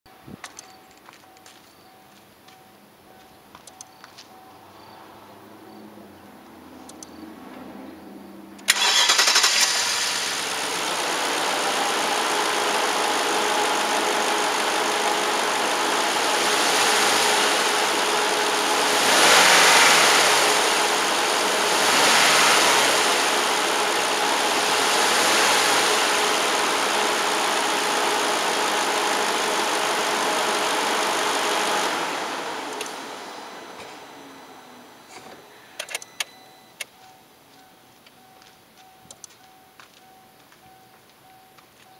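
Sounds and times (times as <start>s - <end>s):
car engine starting and idling: 4.5s - 37.0s
engine revving: 8.6s - 35.2s.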